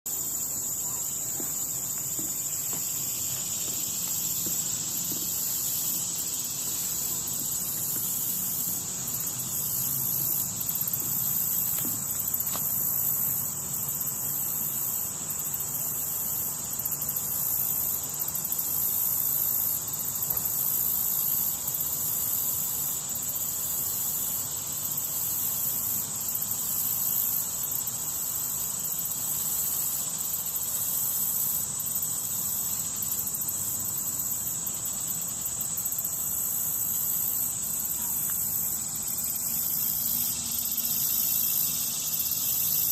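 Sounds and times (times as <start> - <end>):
insects chorus calling: 0.1 - 42.9
pulsing high insect layer: 0.1 - 42.9.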